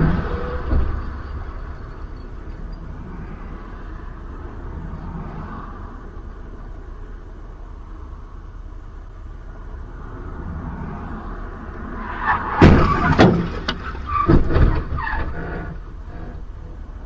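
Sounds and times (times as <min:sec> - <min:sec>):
car road rumble: 0:00.0 - 0:17.0
car collision bang and crunches: 0:12.3 - 0:15.4.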